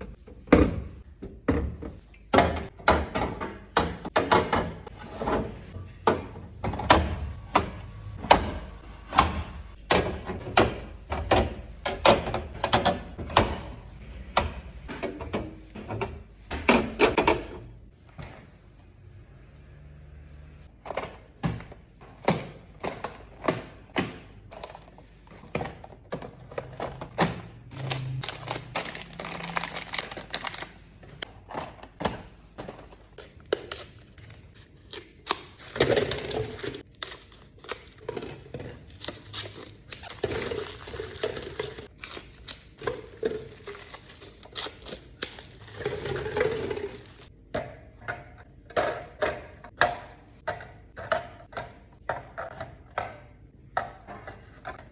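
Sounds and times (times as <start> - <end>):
food containers clicking and knocking: 0.0 - 17.9, 20.7 - 34.2, 35.1 - 54.9
plastic packaging crinkling: 27.7 - 30.9.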